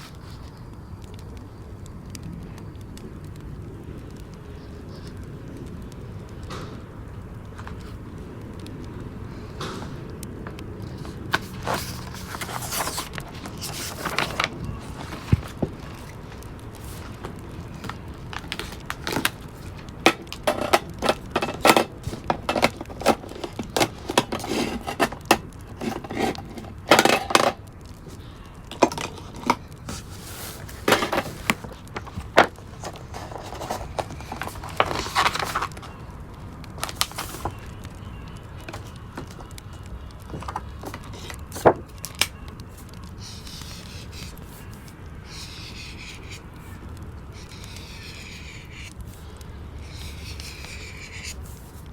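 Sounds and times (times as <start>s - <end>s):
fireplace crackling: 24.4s - 43.4s.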